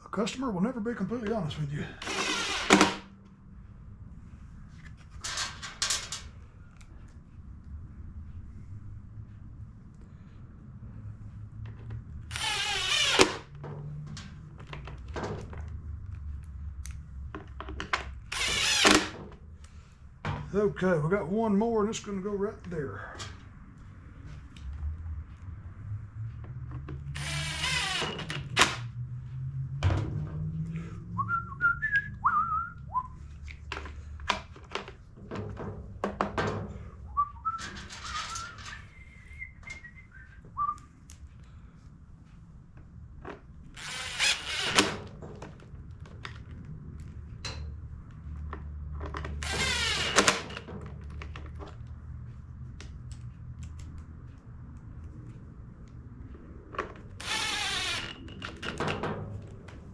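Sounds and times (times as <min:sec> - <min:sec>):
power screwdriver driving screws: 0:02.0 - 0:03.1, 0:12.3 - 0:13.4, 0:18.3 - 0:19.2, 0:27.2 - 0:28.8, 0:43.8 - 0:45.0
person whistling: 0:31.2 - 0:33.2, 0:37.1 - 0:37.6, 0:38.3 - 0:40.9.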